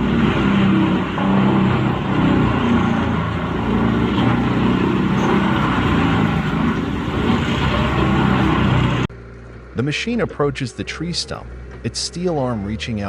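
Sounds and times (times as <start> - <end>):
chipping and grinding noise: 0.0 - 9.6
wood chipper engine running: 0.0 - 9.8.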